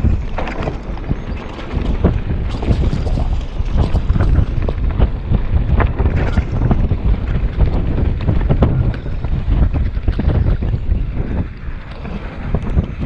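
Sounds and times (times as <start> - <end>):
short knocks and rattles: 0.0 - 5.2
wind buffeting microphone: 0.0 - 13.0.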